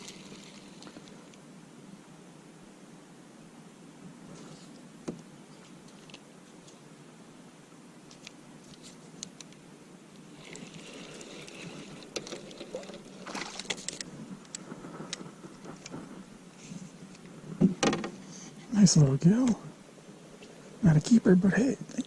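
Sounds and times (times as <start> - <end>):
fishing gear clicks and rattles: 10.4 - 16.1.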